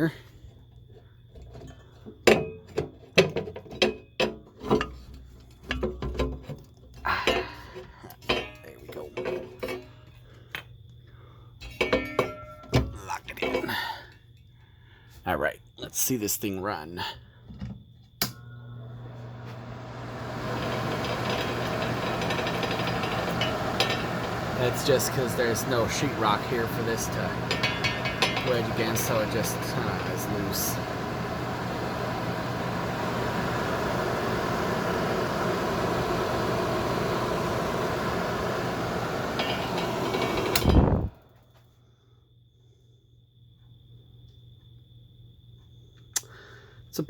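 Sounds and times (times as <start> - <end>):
exhaust fan humming: 18.2 - 41.4
light rattle from fan housing: 20.2 - 41.3.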